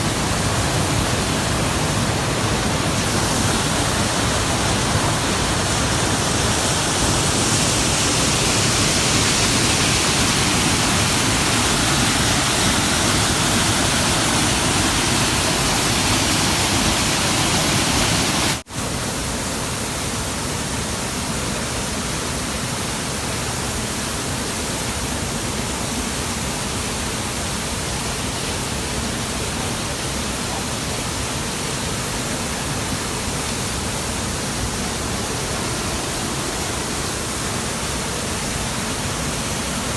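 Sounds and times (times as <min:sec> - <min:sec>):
waterfall pouring: 0:00.0 - 0:18.6.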